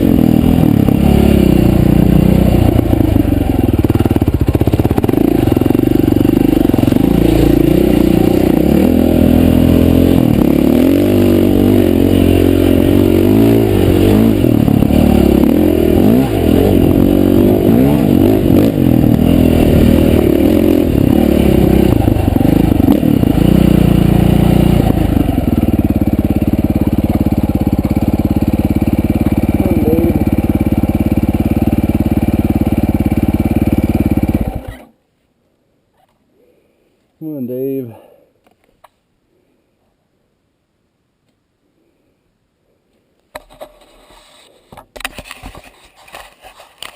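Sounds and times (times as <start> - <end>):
dirt bike engine revving: 0.0 - 34.9.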